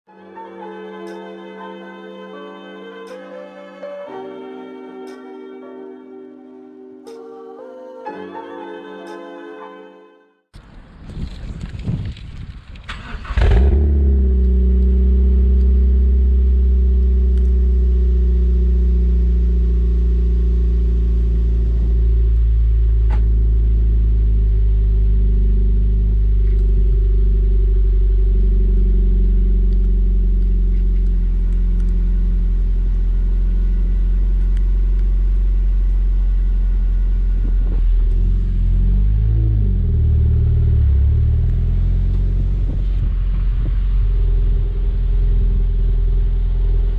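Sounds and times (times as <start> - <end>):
car engine starting and idling: 12.8 - 46.9.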